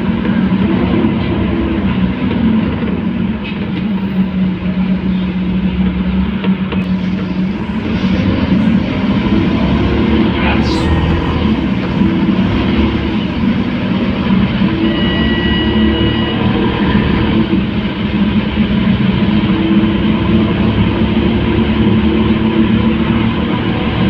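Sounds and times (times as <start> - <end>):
bus diesel engine droning: 6.8 - 16.9.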